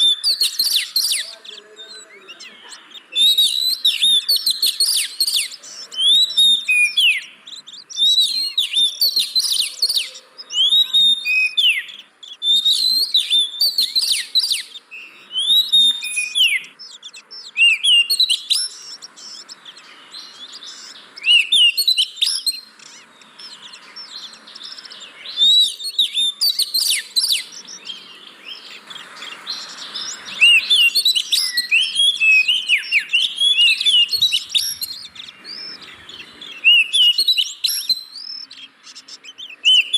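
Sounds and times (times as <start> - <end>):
bird singing whistles and trills: 0.0 - 39.9.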